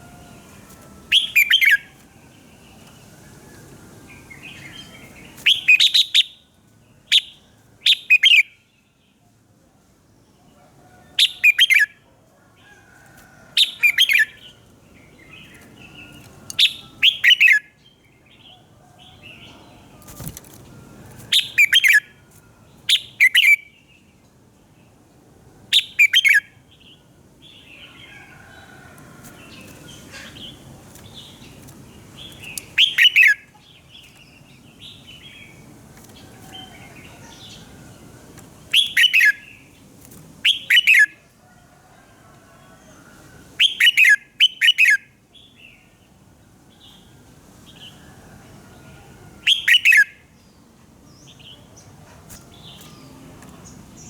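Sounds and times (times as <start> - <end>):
bird whistled song phrases: 38.7 - 39.5, 40.4 - 41.1, 43.6 - 45.0, 49.5 - 50.2.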